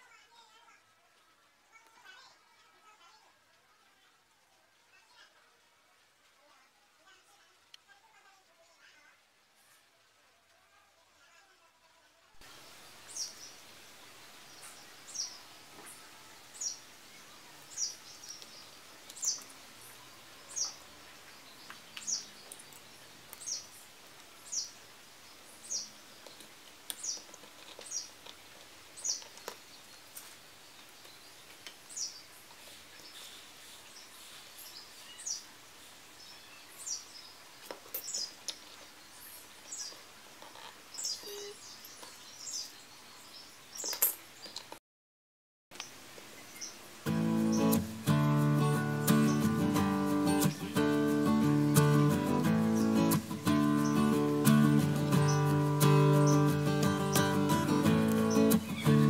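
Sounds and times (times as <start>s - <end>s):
faint background hiss: 0.0s - 44.8s, 45.8s - 59.0s
bird chirping: 12.4s - 44.7s, 45.8s - 59.0s.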